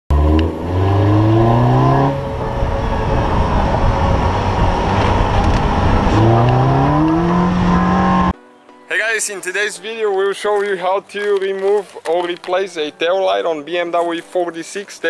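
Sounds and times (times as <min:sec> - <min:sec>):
car engine accelerating: 0:00.1 - 0:08.3
road and wind noise: 0:00.1 - 0:08.4.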